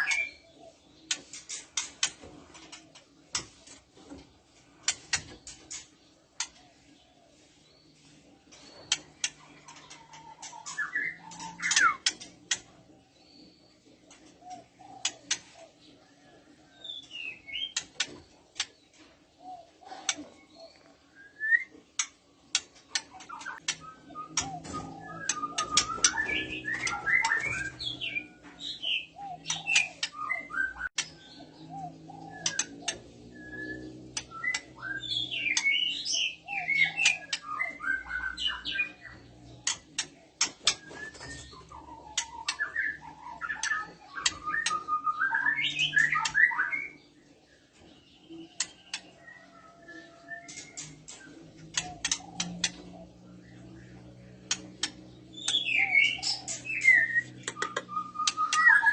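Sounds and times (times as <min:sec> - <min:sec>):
bird whistling and chattering: 0:10.6 - 0:12.2, 0:23.2 - 0:30.9, 0:31.9 - 0:39.2, 0:55.3 - 0:58.9
bird sharp clicks: 0:56.5 - 0:58.7.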